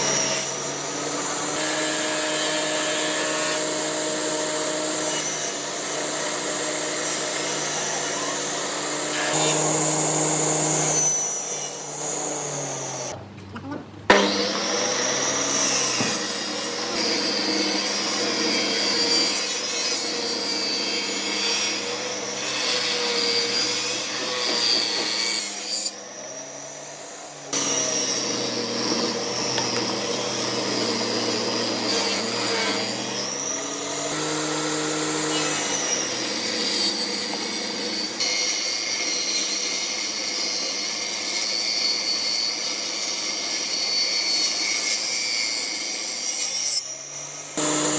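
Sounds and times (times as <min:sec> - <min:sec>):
power tool motor running: 0:08.6 - 0:11.0, 0:27.5 - 0:38.2, 0:47.6 - 0:47.9
wood rasping from cutting: 0:27.5 - 0:38.4.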